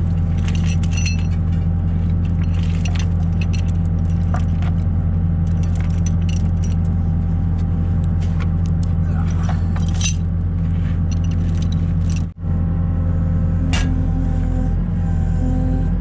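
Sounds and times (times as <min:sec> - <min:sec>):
skid steer engine running: 0:00.0 - 0:16.0
chain clinking and rattling: 0:00.1 - 0:07.0, 0:09.2 - 0:10.3, 0:11.0 - 0:12.4.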